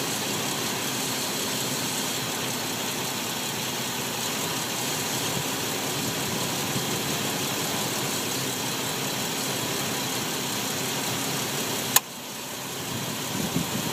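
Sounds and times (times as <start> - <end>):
car engine idling: 0.0 - 13.9
sharp click: 11.9 - 12.1.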